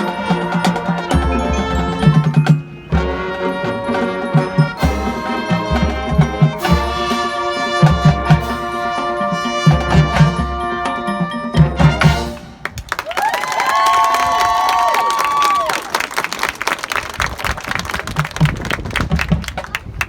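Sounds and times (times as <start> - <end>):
brass chords: 0.0 - 12.8
drumline drum hits: 0.0 - 12.9.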